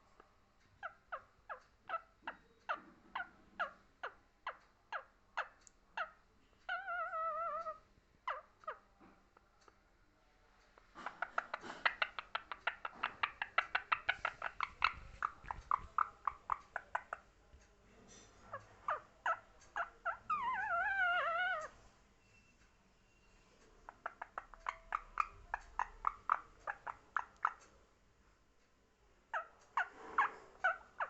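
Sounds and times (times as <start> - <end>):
parrot calling: 0.8 - 8.8, 10.8 - 17.2, 18.5 - 21.8, 23.9 - 27.6, 29.3 - 31.0.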